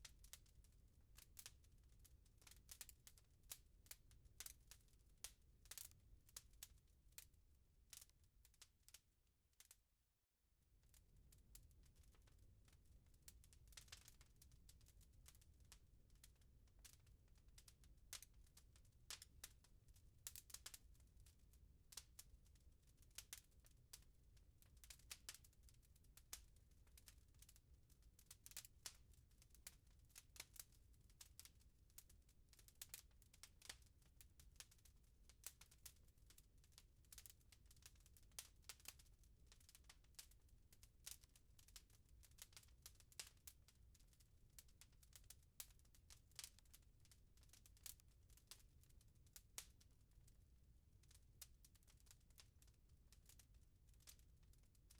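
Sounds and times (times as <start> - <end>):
wood fire crackling: 0.1 - 0.5, 1.1 - 1.7, 2.4 - 7.3, 12.7 - 19.6, 20.2 - 21.3, 21.9 - 22.3, 23.2 - 36.0, 36.7 - 43.7, 44.6 - 46.7, 47.6 - 48.6.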